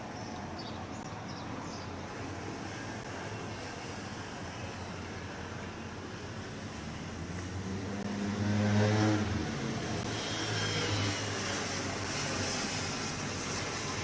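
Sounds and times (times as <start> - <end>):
engine hum: 0.0 - 14.0
steady rushing noise: 0.0 - 14.0.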